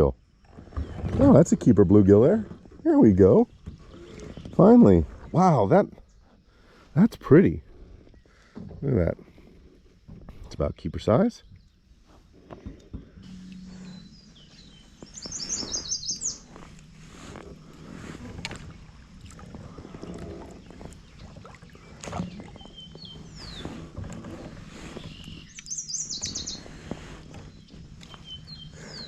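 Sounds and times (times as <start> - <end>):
songbird trilling: 13.4 - 16.5, 22.3 - 23.8, 25.0 - 29.0
bird chips: 15.1 - 16.5, 25.1 - 26.8.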